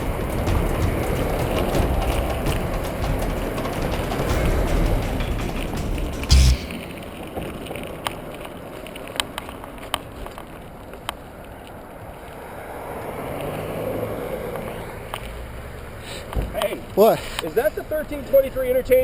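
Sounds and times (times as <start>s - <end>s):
heavy thump: 4.3s - 7.5s.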